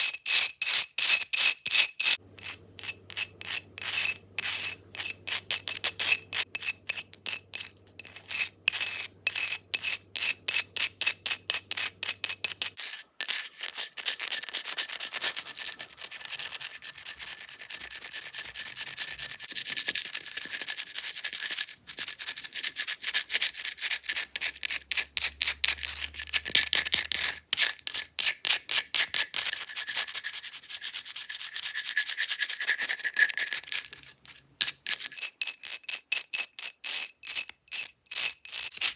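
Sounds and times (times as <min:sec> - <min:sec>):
fingernails scratching a surface: 0:02.0 - 0:19.8.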